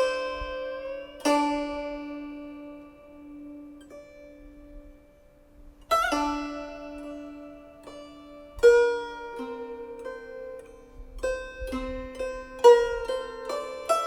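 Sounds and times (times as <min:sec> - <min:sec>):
guzheng plucked notes: 0:00.0 - 0:14.0.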